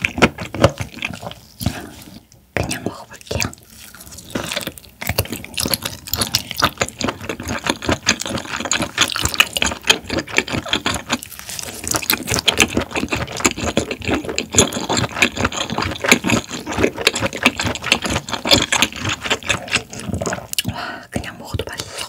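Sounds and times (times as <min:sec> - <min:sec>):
wet chewing smacks and clicks: 0:02.6 - 0:20.8.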